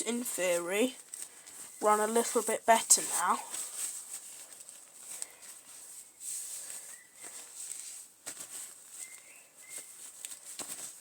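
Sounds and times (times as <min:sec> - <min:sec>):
faint high chirps: 0:09.0 - 0:10.0.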